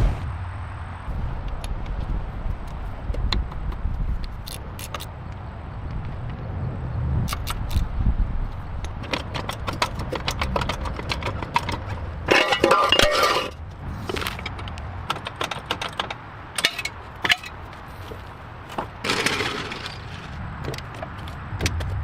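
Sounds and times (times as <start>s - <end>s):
clicks knocks and clatter: 8.8s - 13.5s, 14.1s - 17.6s.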